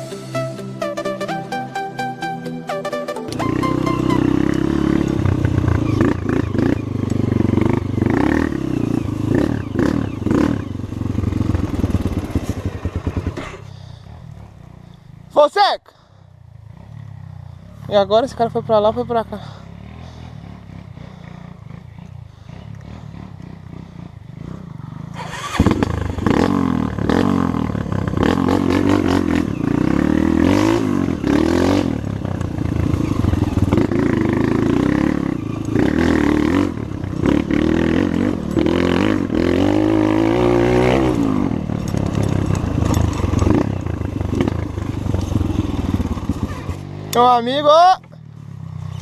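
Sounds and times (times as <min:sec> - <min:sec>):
motorcycle engine revving: 0:03.2 - 0:49.0.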